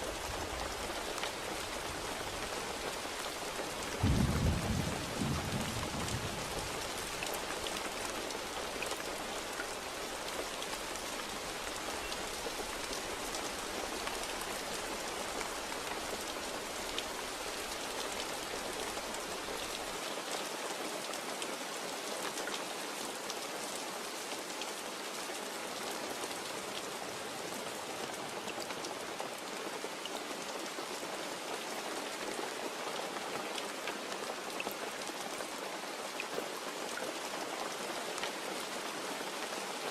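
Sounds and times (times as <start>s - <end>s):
rain drops ticking: 0.0s - 39.8s
heavy rain: 0.0s - 39.9s
thunder rumbling: 4.0s - 7.6s.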